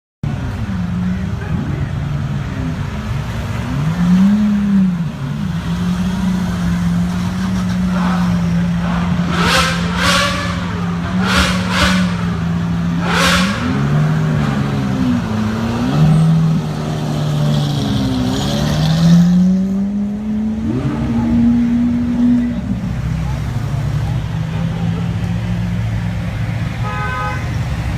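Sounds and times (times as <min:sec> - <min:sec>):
car engine revving: 0:02.6 - 0:26.6.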